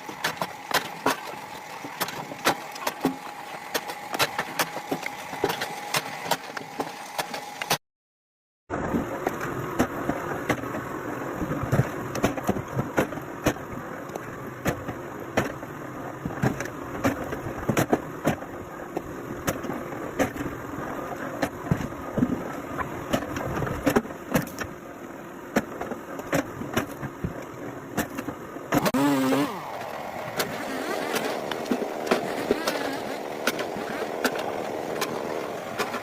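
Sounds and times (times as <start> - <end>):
machine engine running: 28.8 - 36.0.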